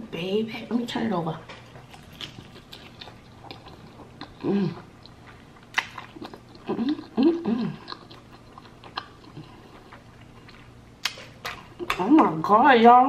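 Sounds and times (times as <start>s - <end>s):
person chewing crispy food: 1.6s - 11.9s
person humming: 4.4s - 4.8s.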